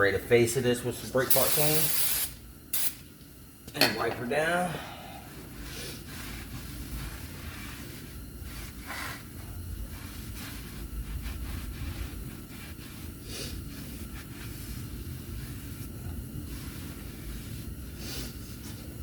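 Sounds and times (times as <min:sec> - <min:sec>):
spray can hissing bursts: 0:01.3 - 0:03.0.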